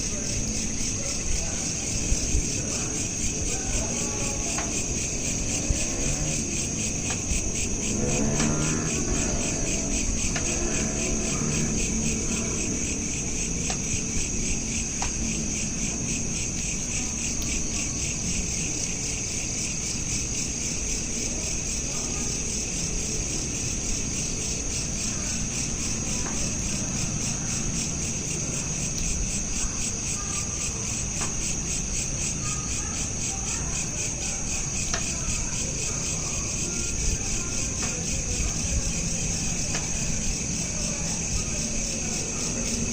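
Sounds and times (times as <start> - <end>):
crickets chirping: 0.0 - 42.9.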